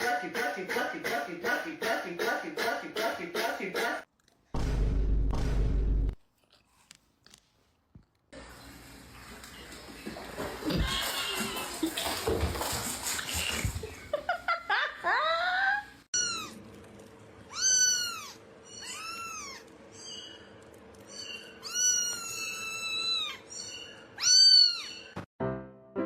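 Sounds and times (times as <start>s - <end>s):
cat meowing: 17.5s - 19.7s, 21.2s - 25.1s.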